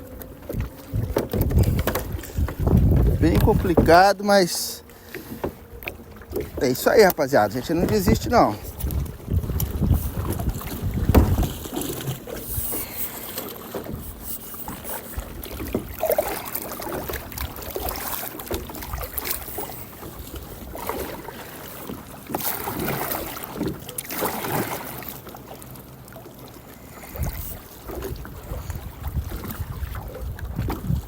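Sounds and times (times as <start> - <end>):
wind buffeting microphone: 0.0 - 4.4, 7.4 - 13.0, 27.0 - 31.0
water washing against hull: 0.0 - 31.0.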